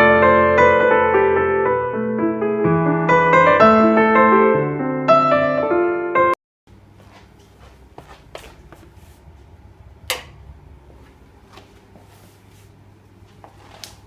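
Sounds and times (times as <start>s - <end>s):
steady low hum: 6.7s - 14.0s.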